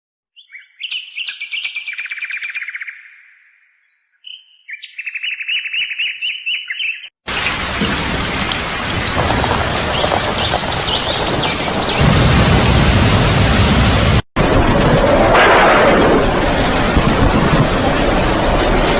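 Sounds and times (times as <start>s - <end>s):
songbird singing trilled phrases: 0.3s - 7.2s.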